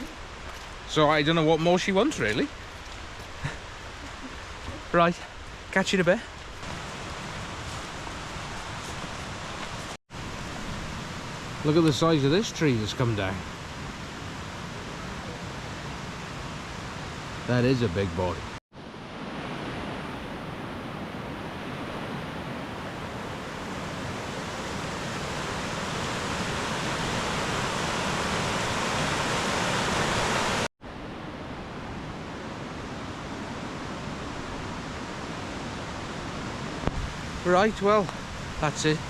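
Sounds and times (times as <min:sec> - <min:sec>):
fast-flowing stream water: 0:23.7 - 0:30.7.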